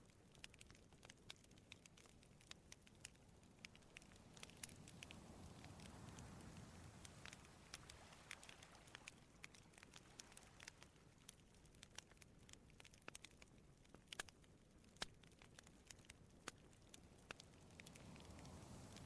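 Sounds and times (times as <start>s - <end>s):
campfire crackling and popping: 0.0s - 19.0s
soft low rush: 3.1s - 11.2s, 16.8s - 19.0s.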